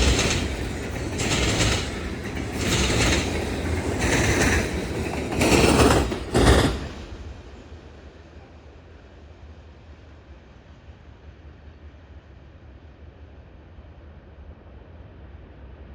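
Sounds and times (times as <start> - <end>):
train wheels clattering: 0.0 - 7.8.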